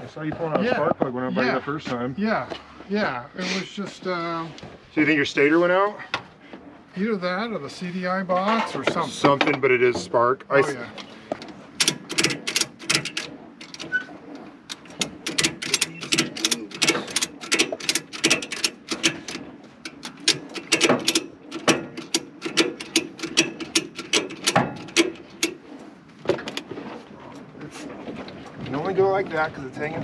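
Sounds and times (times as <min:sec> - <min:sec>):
ratchet strap clicking: 0:11.8 - 0:14.0, 0:14.7 - 0:25.6.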